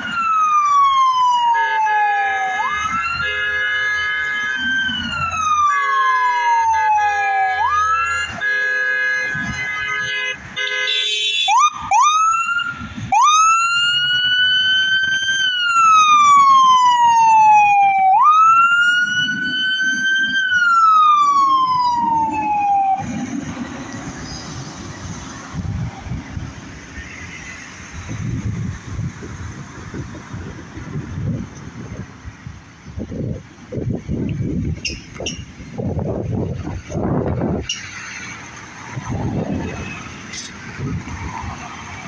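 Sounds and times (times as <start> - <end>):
fire engine siren wailing: 0.0 - 31.2, 33.9 - 42.0
truck engine rumble: 11.8 - 42.0.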